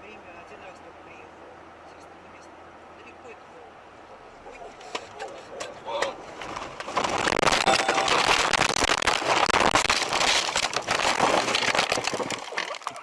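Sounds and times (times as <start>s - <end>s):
car crash crunching: 4.9s - 13.0s.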